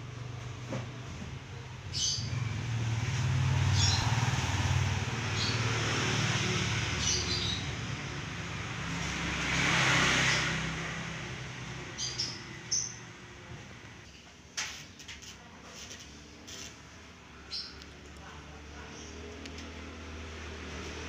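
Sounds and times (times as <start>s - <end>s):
traffic engine hum: 0.0s - 14.1s, 15.0s - 21.0s
vehicles passing by: 0.0s - 14.1s, 15.9s - 21.0s
bird chirps: 12.0s - 13.1s.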